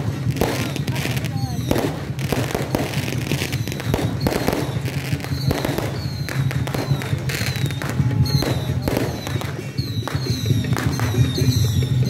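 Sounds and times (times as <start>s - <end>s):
firecrackers crackling: 0.0s - 12.0s
high falling whistles: 3.5s - 12.0s.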